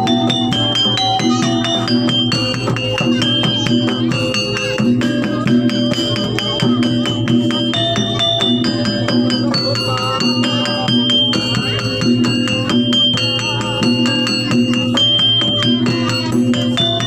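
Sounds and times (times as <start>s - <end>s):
bright held melodic notes: 0.0s - 17.0s
dense percussion beat: 0.0s - 17.0s.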